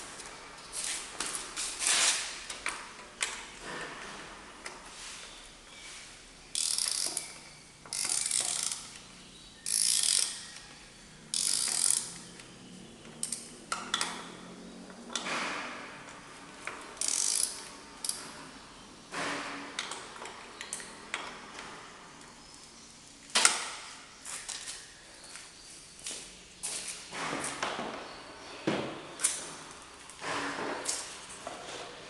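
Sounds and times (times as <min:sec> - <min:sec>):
ratchet wrench clicking: 0:06.5 - 0:09.0, 0:09.6 - 0:10.4, 0:11.3 - 0:12.2, 0:17.0 - 0:18.2.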